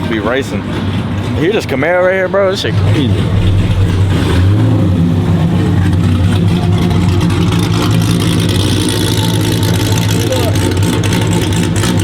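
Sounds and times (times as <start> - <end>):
car engine rumbling: 2.7 - 10.0.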